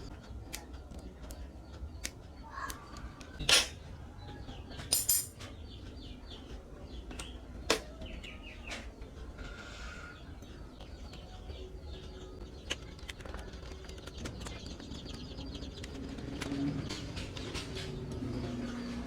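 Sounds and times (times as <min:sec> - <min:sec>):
birds chirping: 0:00.0 - 0:19.0
metallic clinks and knocks: 0:04.8 - 0:05.5.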